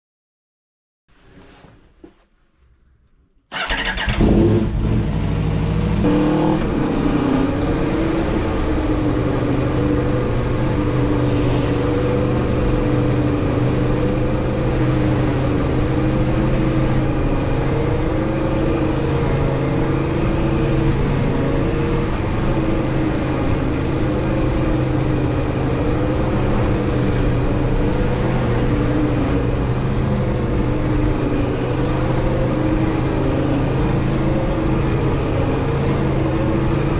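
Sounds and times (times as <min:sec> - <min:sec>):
motorcycle engine starting and idling: 0:03.5 - 0:06.0.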